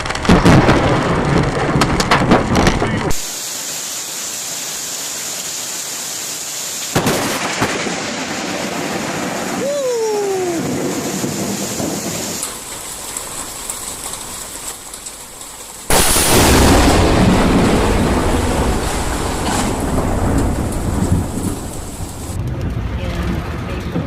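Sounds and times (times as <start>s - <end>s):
loud thunderclap and rumbling: 0.0s - 3.3s, 6.9s - 14.4s, 15.9s - 24.0s
steady rain: 0.0s - 23.6s.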